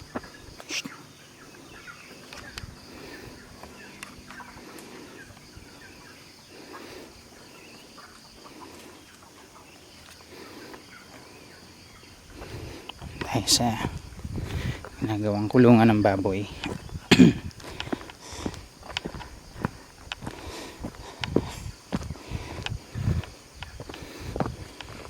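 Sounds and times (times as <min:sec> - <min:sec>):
chickens clucking: 0:00.0 - 0:15.2.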